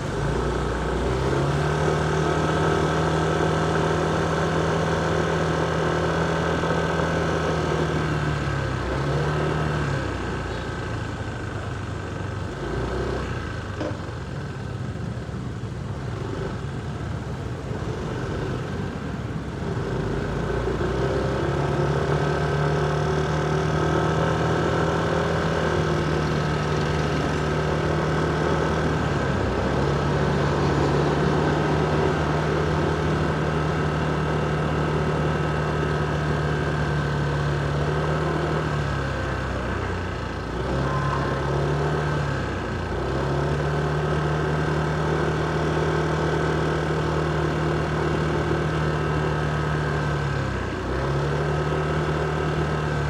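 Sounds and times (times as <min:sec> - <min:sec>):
motorcycle engine humming: 0:13.6 - 0:53.0.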